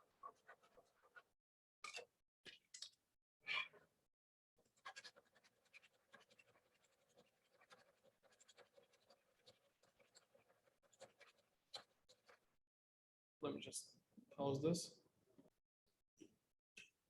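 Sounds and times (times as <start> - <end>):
sandpaper scratching plastic: 4.8 - 12.4.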